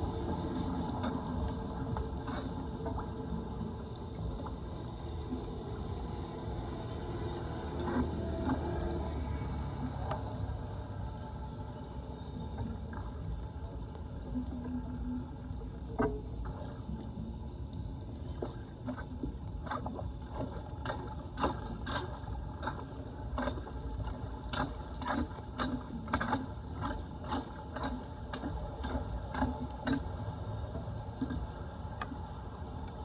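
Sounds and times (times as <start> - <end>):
floodwater rushing: 0.0 - 13.8.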